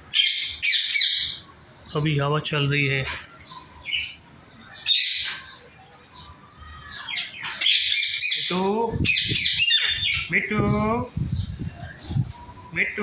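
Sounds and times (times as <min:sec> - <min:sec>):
parrots squawking: 0:00.1 - 0:01.5, 0:06.4 - 0:10.4.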